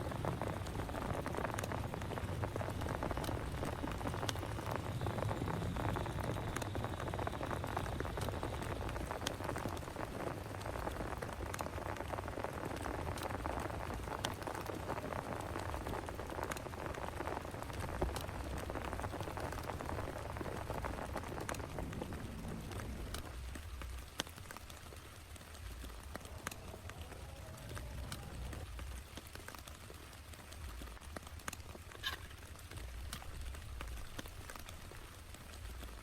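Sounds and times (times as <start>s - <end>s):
heavy rain falling: 0.0s - 36.0s.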